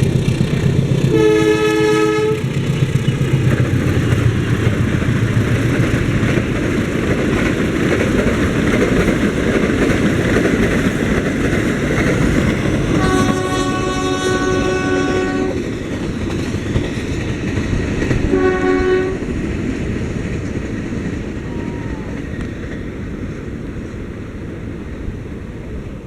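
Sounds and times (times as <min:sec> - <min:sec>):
train wheels rumbling on rails: 0:00.0 - 0:26.0
train horn blasts: 0:01.1 - 0:02.5, 0:12.9 - 0:15.6, 0:18.2 - 0:19.4.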